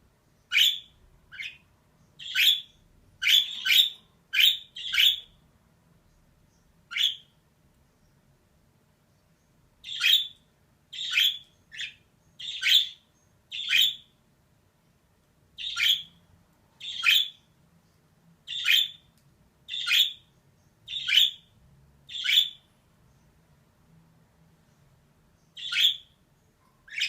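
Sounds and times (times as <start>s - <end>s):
budgerigar squawking chirps: 2.2s - 5.3s, 6.9s - 7.3s, 11.0s - 14.1s, 15.6s - 16.2s, 20.9s - 21.4s, 25.6s - 26.1s.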